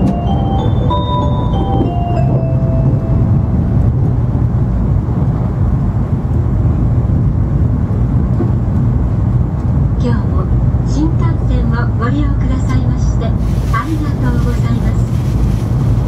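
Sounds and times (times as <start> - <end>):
onboard chime melody: 0.0 - 3.6
train cabin low rumble: 0.0 - 16.0.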